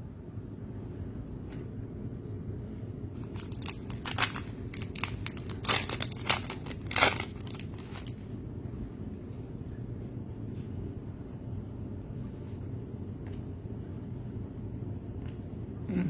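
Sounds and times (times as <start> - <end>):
plastic wrapper crinkling and tearing: 3.2 - 8.2.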